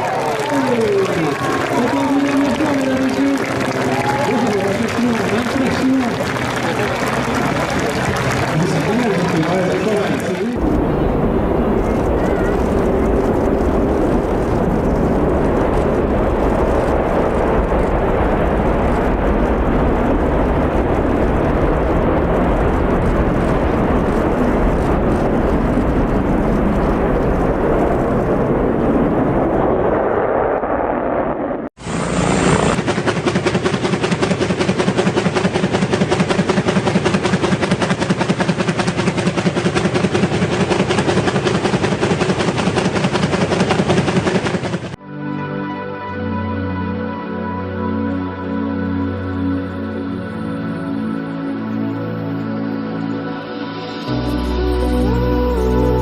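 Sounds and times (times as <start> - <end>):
helicopter rotor chopping: 0.0 - 45.0
rushing aircraft noise: 0.0 - 45.0.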